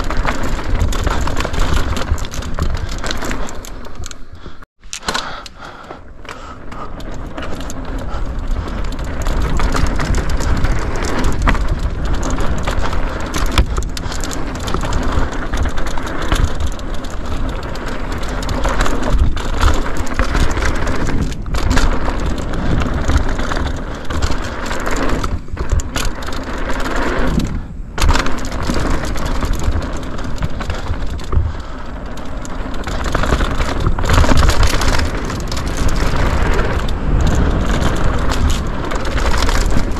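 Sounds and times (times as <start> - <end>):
bike rattling over bumps: 0.0 - 39.9
bike tyres rumbling on dirt: 0.0 - 39.9.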